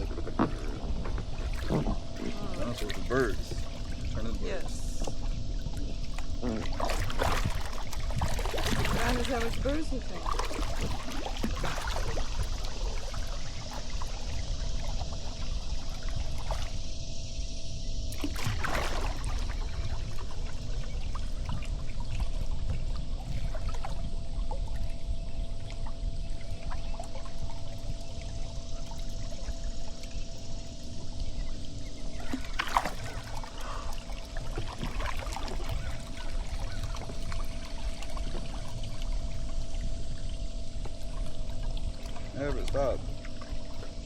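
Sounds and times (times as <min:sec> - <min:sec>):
water splash: 0:00.0 - 0:05.2, 0:06.2 - 0:16.8, 0:18.1 - 0:21.6, 0:32.1 - 0:39.1
water dripping from paddle: 0:00.0 - 0:16.7, 0:18.1 - 0:44.0
steady low rumble: 0:00.0 - 0:44.0.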